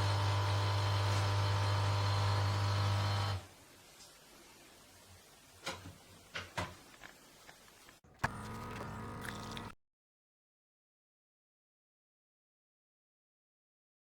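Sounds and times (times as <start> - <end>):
coffee machine humming: 0.0 - 3.4, 8.1 - 9.8.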